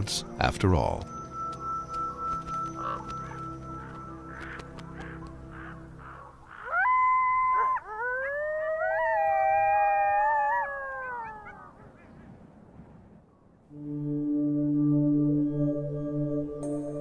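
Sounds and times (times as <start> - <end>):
canids howling: 1.6 - 12.4.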